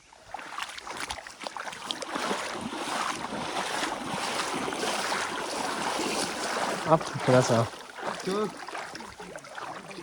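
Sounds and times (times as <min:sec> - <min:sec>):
stream water splashing and rushing: 0:00.0 - 0:10.0.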